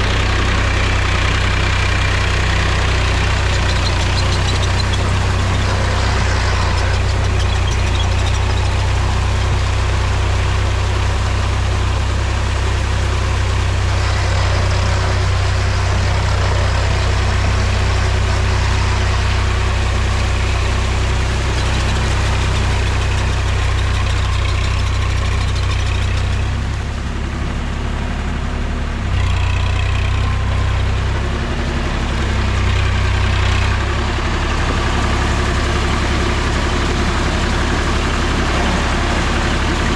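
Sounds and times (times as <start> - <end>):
rattly mechanical noise: 0.0 - 26.8
tractor diesel engine running: 0.0 - 39.9.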